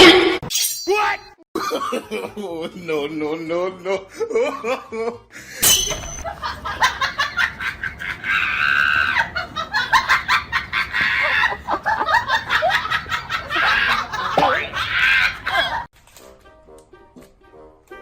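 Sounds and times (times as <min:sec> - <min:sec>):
person laughing with squeals: 0:07.6 - 0:15.9.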